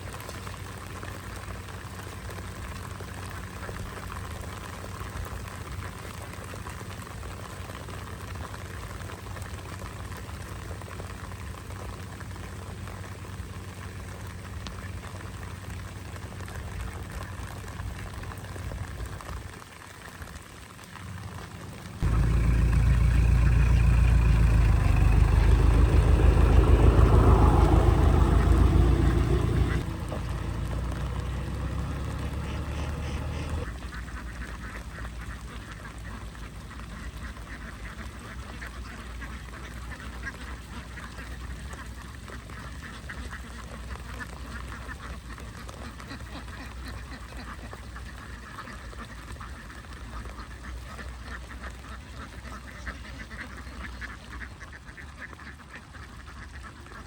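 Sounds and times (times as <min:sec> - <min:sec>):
loud low rumble: 0:22.0 - 0:33.7
ducks quacking: 0:22.0 - 0:57.0.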